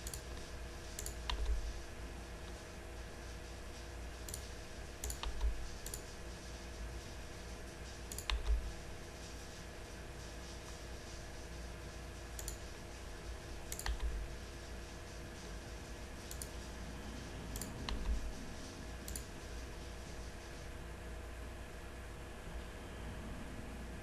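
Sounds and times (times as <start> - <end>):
low electrical hum: 0.0 - 24.0
mouse and keyboard clicks: 1.0 - 1.6, 4.3 - 6.1, 8.1 - 8.7, 12.4 - 12.6, 13.7 - 14.2, 19.0 - 19.3.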